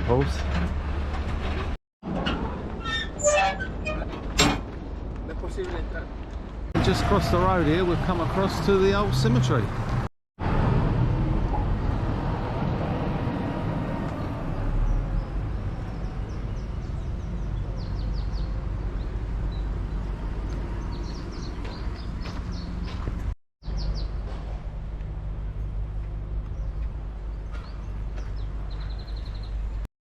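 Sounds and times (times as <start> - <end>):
low traffic rumble: 0.0 - 29.9
small birds chirping: 14.2 - 24.2, 26.5 - 29.8.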